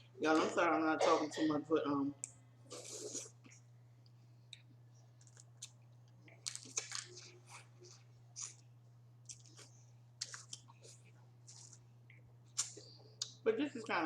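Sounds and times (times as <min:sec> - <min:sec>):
steady low hum: 0:00.0 - 0:14.0
chewing: 0:04.5 - 0:08.6, 0:09.2 - 0:13.4.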